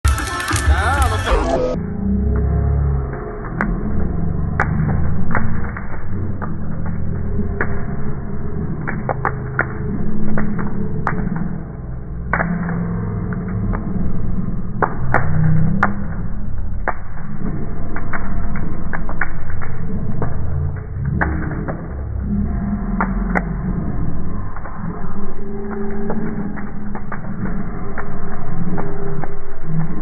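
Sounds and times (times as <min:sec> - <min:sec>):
bonfire crackling and popping: 0:00.0 - 0:30.0
steady low rumble: 0:00.0 - 0:30.0.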